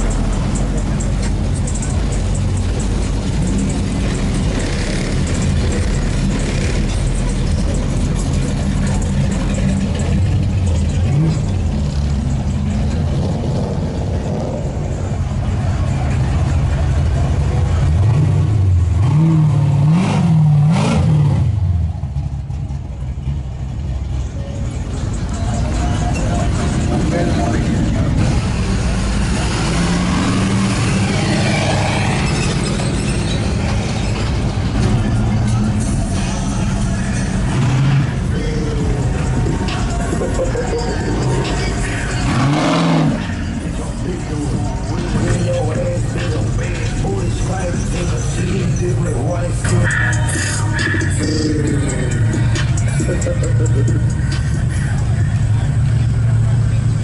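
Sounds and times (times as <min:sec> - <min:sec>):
car engine running: 0:00.0 - 0:57.0
people talking: 0:24.2 - 0:30.1, 0:38.1 - 0:57.0.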